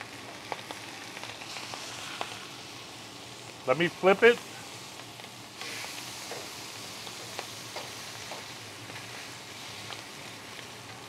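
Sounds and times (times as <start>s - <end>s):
fish skin sizzling on a griddle: 0.0s - 11.0s.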